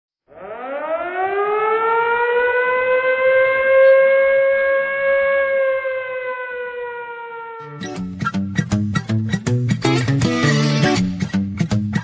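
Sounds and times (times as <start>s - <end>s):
siren wailing: 0.3s - 8.1s.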